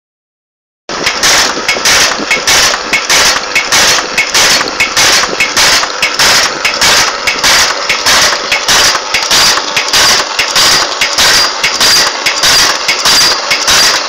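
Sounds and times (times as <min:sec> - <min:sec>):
machine press strokes clattering: 0:00.9 - 0:14.0
motor hum: 0:00.9 - 0:14.0.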